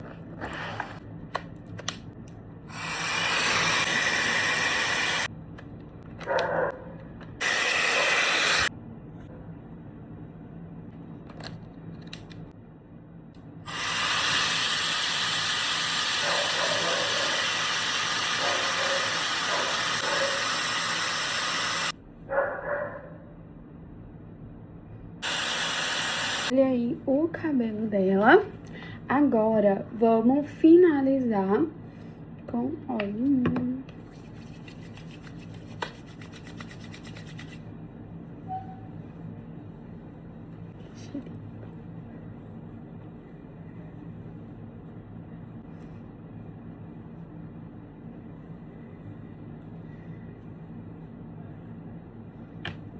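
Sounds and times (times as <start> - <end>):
hair dryer blowing: 2.7 - 5.3, 7.4 - 8.7, 13.7 - 21.9, 25.2 - 26.5.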